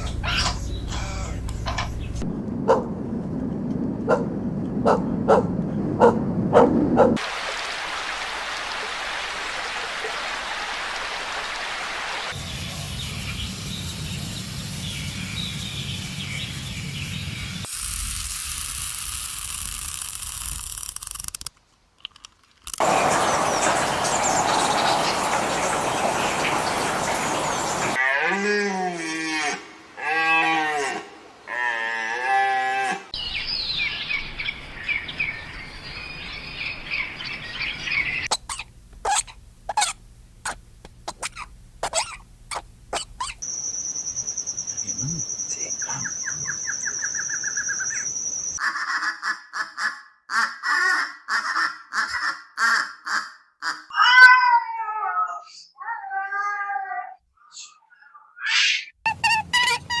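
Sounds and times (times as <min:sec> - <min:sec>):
steady hiss: 0:07.2 - 0:21.1
cow mooing: 0:28.0 - 0:33.0
faint high chirps: 0:41.1 - 0:48.6.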